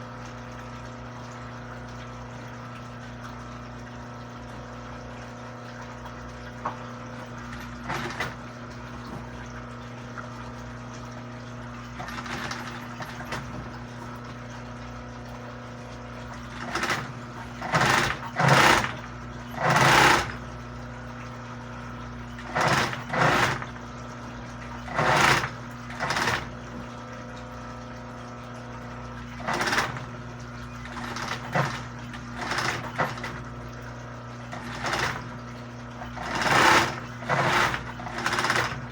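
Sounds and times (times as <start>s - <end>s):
sewing machine stitching: 7.3s - 9.4s, 11.9s - 14.2s, 16.4s - 20.6s, 22.2s - 26.9s, 29.1s - 33.6s, 34.5s - 38.9s.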